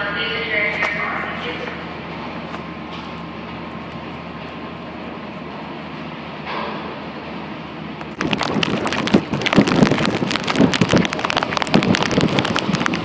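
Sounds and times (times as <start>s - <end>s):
wind buffeting microphone: 8.0s - 13.0s.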